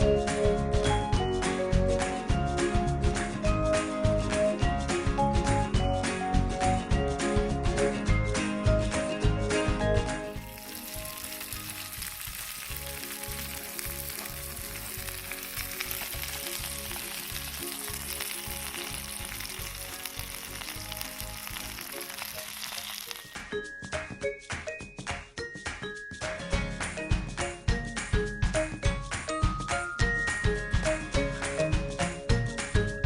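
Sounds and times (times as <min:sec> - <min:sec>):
wood fire crackling: 0:10.3 - 0:23.4.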